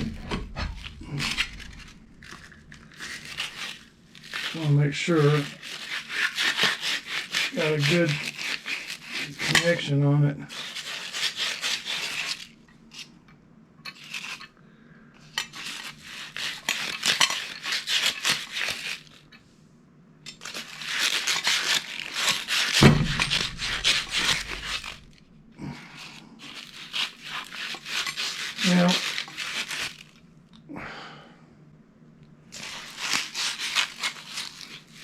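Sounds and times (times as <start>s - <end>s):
scraping on metal fittings: 0.0s - 9.9s, 15.2s - 19.4s, 20.3s - 25.2s, 26.1s - 30.2s
dull thump: 22.8s - 23.7s.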